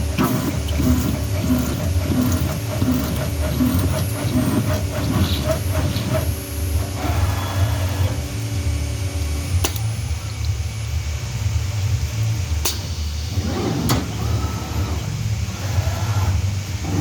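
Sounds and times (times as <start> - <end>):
router spindle humming: 0.0 - 12.6
sharp click: 9.6 - 9.9, 12.6 - 12.9.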